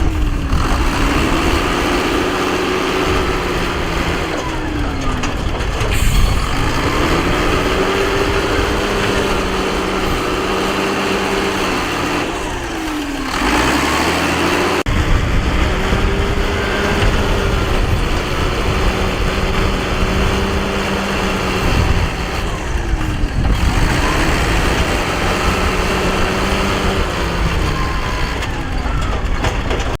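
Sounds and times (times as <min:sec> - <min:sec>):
heavy diesel engine under load: 0:00.0 - 0:30.0.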